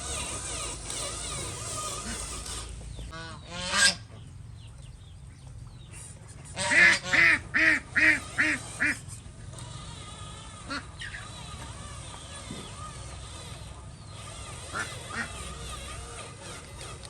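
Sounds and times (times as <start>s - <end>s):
goose honking: 3.1s - 4.1s, 6.6s - 9.0s, 14.7s - 15.4s.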